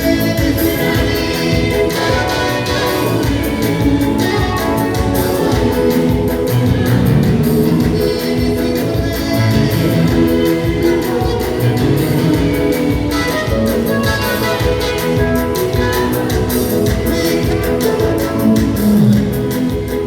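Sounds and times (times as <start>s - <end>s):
choir singing gospel music: 0.0s - 20.0s
instrumental accompaniment with beat: 0.0s - 20.0s.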